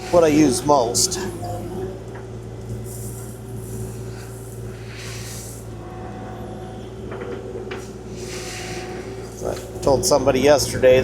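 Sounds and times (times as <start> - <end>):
hydraulic hissing surges: 0.0 - 1.8, 2.7 - 5.9, 7.9 - 10.1
excavator diesel engine running: 0.0 - 11.0.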